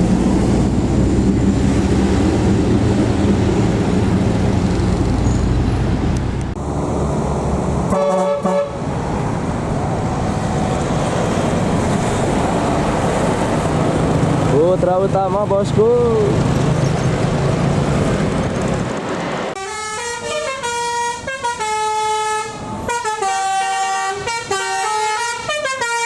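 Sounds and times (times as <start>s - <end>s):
bus diesel engine running: 0.0s - 26.0s
musical bus horn: 7.9s - 8.8s, 19.6s - 26.0s.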